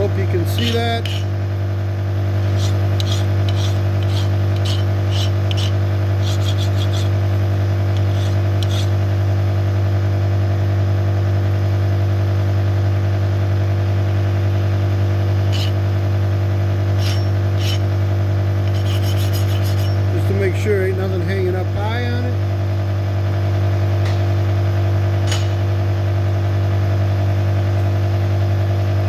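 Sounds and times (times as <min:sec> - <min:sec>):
hand file scraping steel: 0:00.0 - 0:01.4, 0:02.4 - 0:09.0, 0:15.4 - 0:15.8, 0:16.9 - 0:17.9, 0:18.6 - 0:20.4
electric motor humming: 0:00.0 - 0:10.7, 0:13.9 - 0:22.4.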